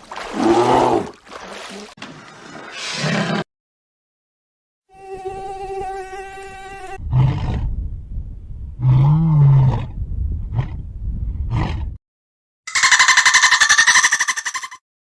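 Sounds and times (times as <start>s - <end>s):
insect buzzing: 4.9s - 7.0s
deep animal calls: 12.7s - 14.8s.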